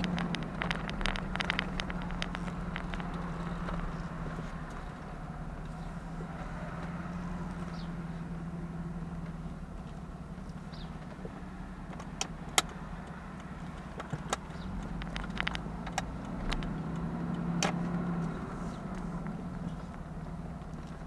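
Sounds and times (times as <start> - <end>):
sharp clicks: 0.0 - 3.9, 11.9 - 19.8
car engine idling: 0.0 - 21.0.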